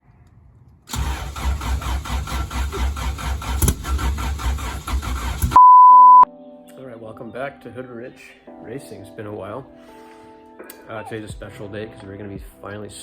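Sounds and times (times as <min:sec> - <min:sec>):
car engine idling: 0:00.9 - 0:05.6.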